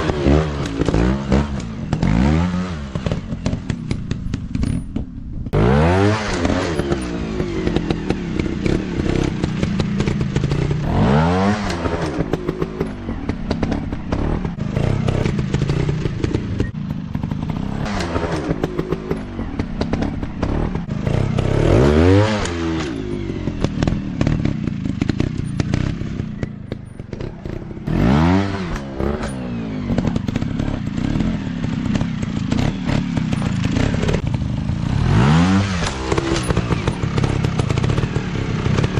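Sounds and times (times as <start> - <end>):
dirt bike engine revving: 0.0 - 4.8, 5.5 - 38.9
bike clattering over rough ground: 22.2 - 38.9.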